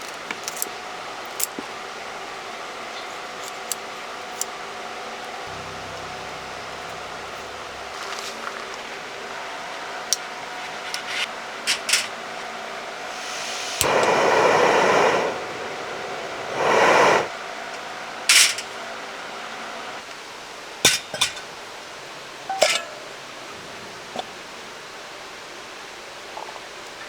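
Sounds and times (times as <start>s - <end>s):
dishes and utensils clinking: 22.5s - 23.1s.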